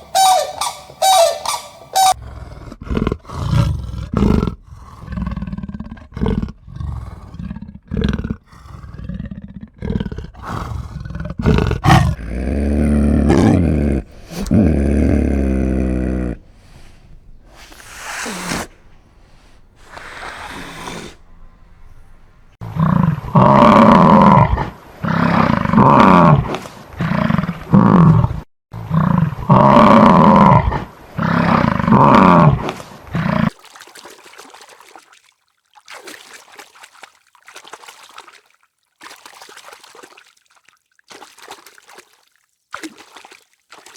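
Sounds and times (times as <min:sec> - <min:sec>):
large animal calling: 0:00.0 - 0:02.2, 0:11.4 - 0:21.9
faint rustling or splashing: 0:13.4 - 0:23.3, 0:32.6 - 0:43.9.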